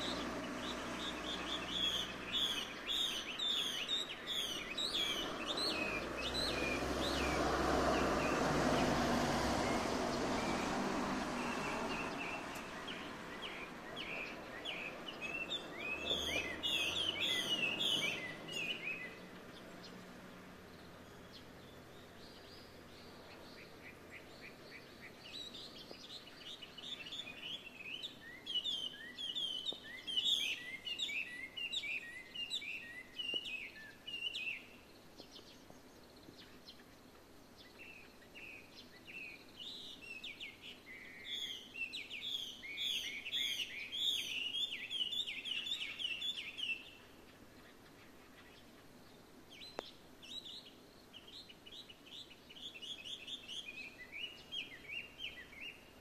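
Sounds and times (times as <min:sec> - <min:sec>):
songbird whistling: 0:01.0 - 0:07.3, 0:11.4 - 0:19.2.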